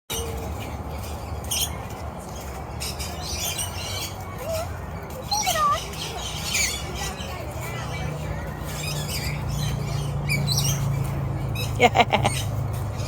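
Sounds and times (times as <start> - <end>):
birds squawking and chirping: 0.1 - 13.0.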